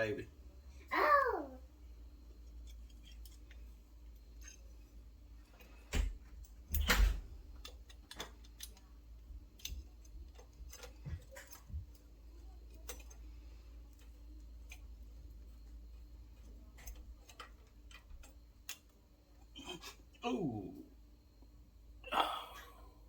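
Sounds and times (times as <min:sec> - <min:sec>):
hand tools and metal parts clicking: 0:02.4 - 0:20.2.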